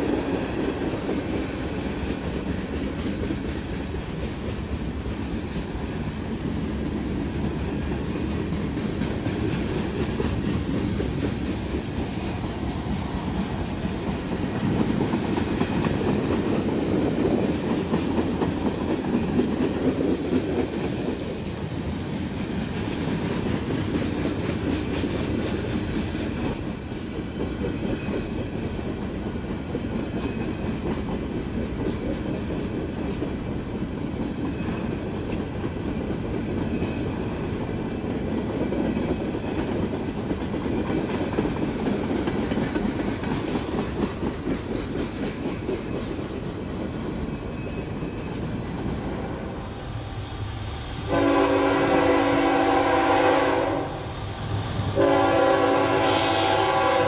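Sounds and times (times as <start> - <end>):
freight cars rolling on rails: 0.0 - 53.4
wheels clacking on rail joints: 0.2 - 49.1
locomotive air horn blasts: 51.1 - 54.1, 55.0 - 57.0.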